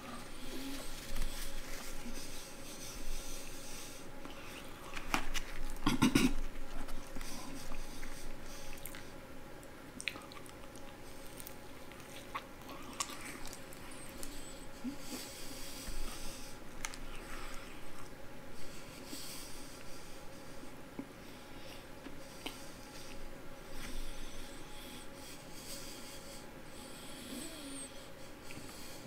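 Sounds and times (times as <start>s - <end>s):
chewing fried chicken: 0.0s - 18.2s.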